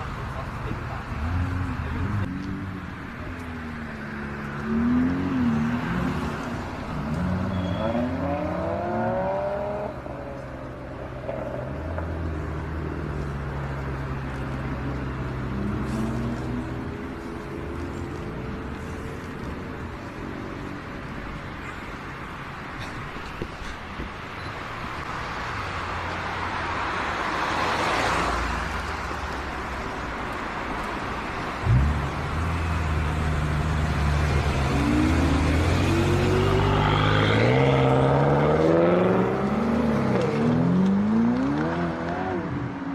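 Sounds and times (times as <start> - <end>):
car passing by: 25.1 - 30.0.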